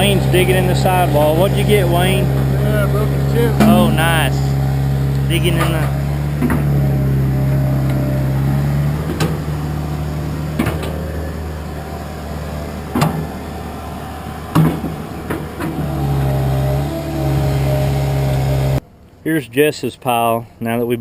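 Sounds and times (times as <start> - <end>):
diesel excavator engine running: 0.0 - 19.0
sharp knocks: 3.6 - 4.3.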